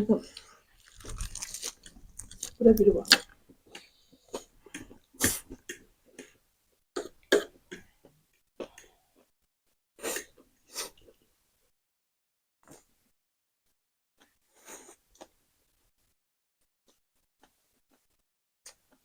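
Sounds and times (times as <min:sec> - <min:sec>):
mouth and eating sounds: 0:00.3 - 0:05.8.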